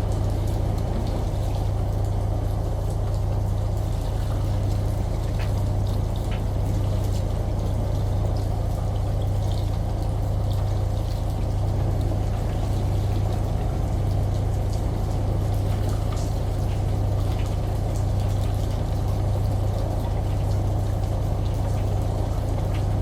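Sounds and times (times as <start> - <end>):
washing machine humming: 0.0 - 23.0
water dripping: 0.0 - 23.0
water running and pouring: 0.0 - 23.0.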